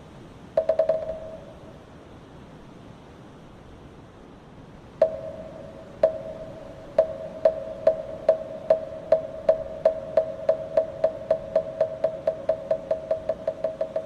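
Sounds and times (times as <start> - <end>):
mallet knocking wooden block: 0.6 - 1.4, 6.0 - 14.0.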